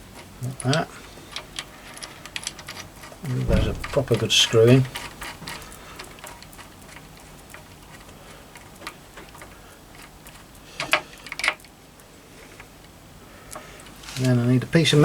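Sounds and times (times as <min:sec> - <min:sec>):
metallic ticking and clicking: 0:03.3 - 0:06.3.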